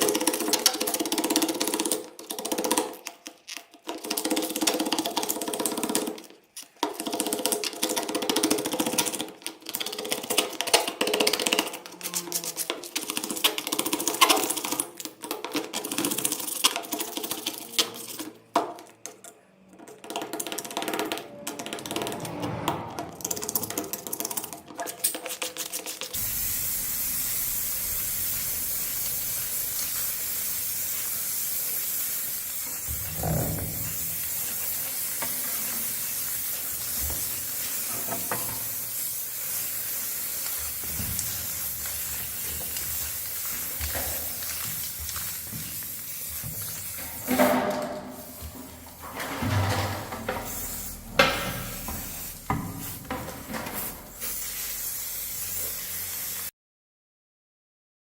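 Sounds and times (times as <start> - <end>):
steady hiss: 26.2 - 56.5.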